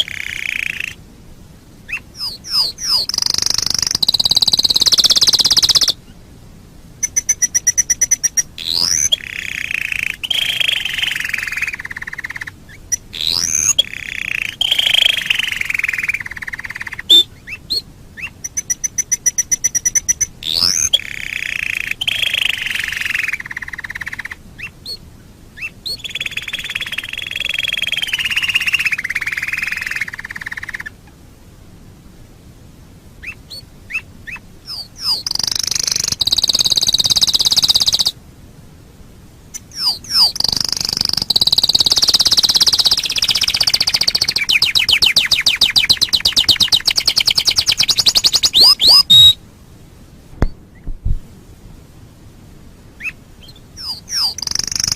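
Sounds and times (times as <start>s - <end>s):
canary singing trills: 0.0s - 1.0s, 1.8s - 6.2s, 7.0s - 25.0s, 25.6s - 30.9s, 33.2s - 38.2s, 39.5s - 49.4s, 53.0s - 54.9s.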